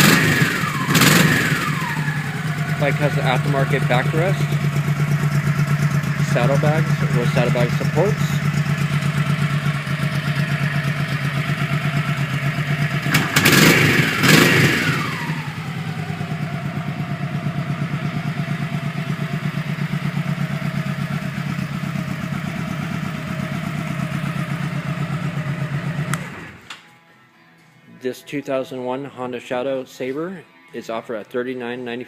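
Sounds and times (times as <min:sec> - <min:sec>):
motorcycle engine idling: 0:00.0 - 0:26.5
motorcycle engine revving: 0:00.0 - 0:26.6.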